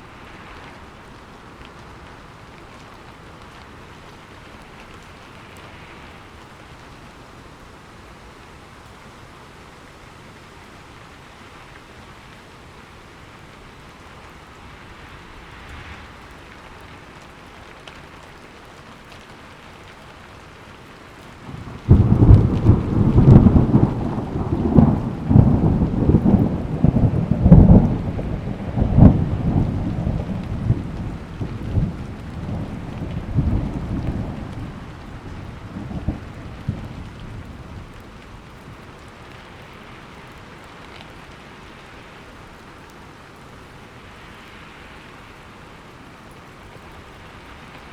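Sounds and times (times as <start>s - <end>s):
steady rain: 0.0s - 47.9s
loud thunderclap rumbling: 21.5s - 38.0s.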